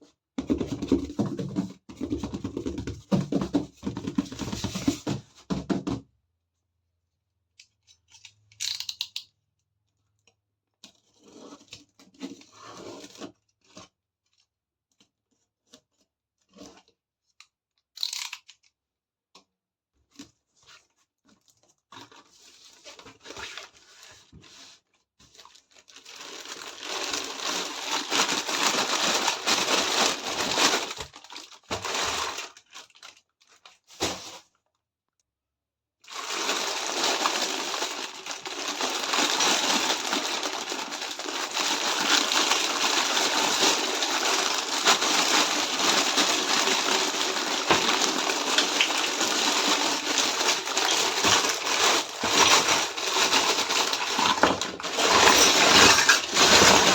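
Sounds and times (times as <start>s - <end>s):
packaging tearing and crinkling: 25.6s - 34.4s, 36.1s - 56.9s.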